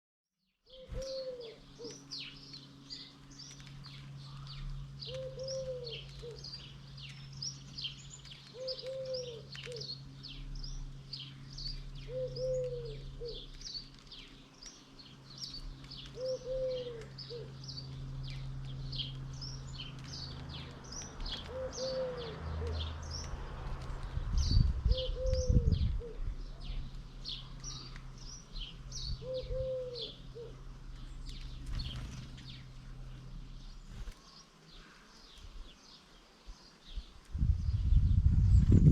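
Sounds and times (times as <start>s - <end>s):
small birds chirping: 0.5s - 38.9s
steady low hum: 0.6s - 38.9s
dove cooing: 0.7s - 2.1s, 5.0s - 6.5s, 8.5s - 9.9s, 12.0s - 13.5s, 16.1s - 17.6s, 21.3s - 23.0s, 24.8s - 26.8s, 29.1s - 30.8s
loud low rumble: 22.8s - 34.0s, 37.4s - 38.9s.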